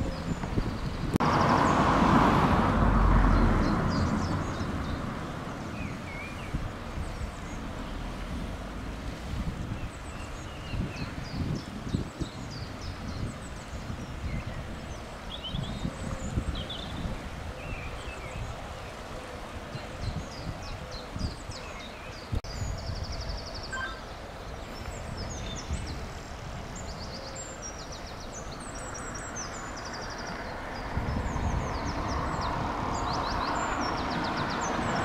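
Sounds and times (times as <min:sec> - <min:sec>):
wind rumbling on microphone: 0:00.0 - 0:35.0
approaching train: 0:01.2 - 0:05.8
small birds chirping: 0:19.8 - 0:35.0.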